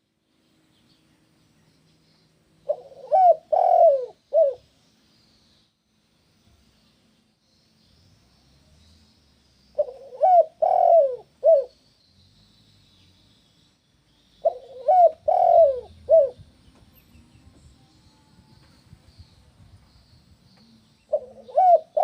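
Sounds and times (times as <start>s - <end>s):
dove cooing: 2.6s - 4.6s, 9.8s - 11.7s, 14.4s - 16.4s, 21.1s - 22.0s.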